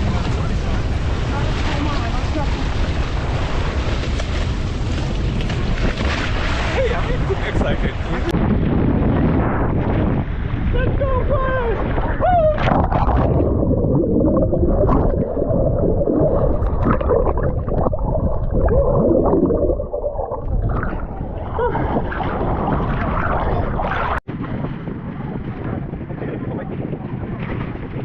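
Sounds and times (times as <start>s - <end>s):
muffled underwater sloshing: 10.2s - 24.3s.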